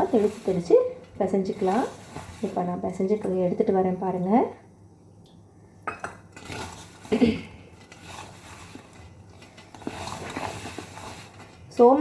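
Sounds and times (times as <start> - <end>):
dough kneaded by hand: 0.0 - 4.5, 6.3 - 12.0
mixing bowl knocking and clinking: 5.8 - 11.3.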